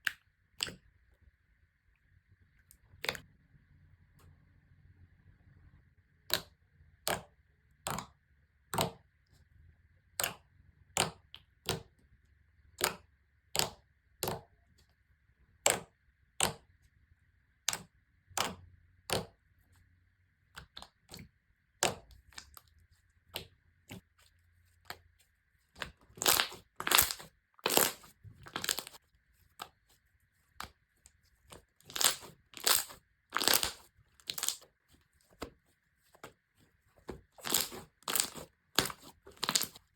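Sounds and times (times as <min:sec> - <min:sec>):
slime popping and crackling: 0:25.8 - 0:29.0, 0:31.7 - 0:34.7, 0:37.2 - 0:39.8.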